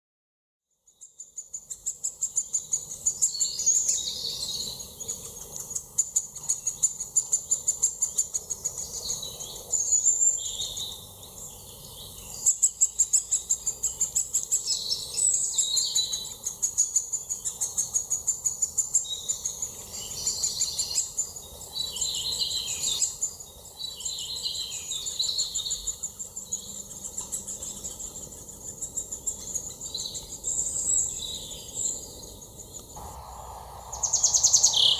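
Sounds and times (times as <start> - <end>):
birds singing: 0.8 - 34.9
high-pitched bird trilling: 33.8 - 34.9.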